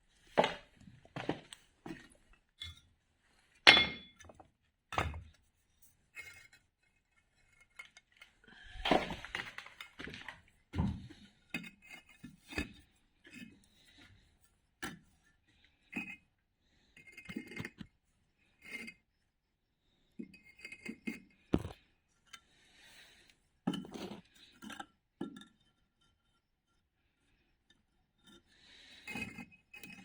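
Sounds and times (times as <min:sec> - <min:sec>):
bricks clinking together: 0:21.5 - 0:21.8.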